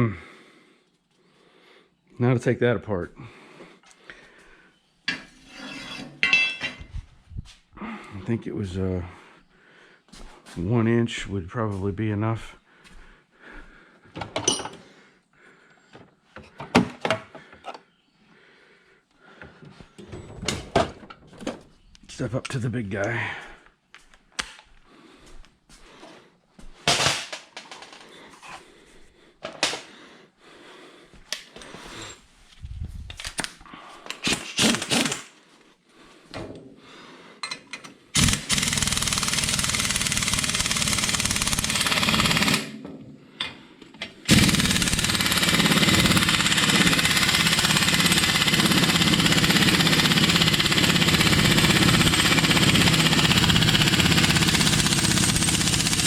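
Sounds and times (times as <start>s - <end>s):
tools clanking: 5.1s - 6.9s, 14.2s - 14.8s
impact wrench hammering: 38.2s - 42.8s.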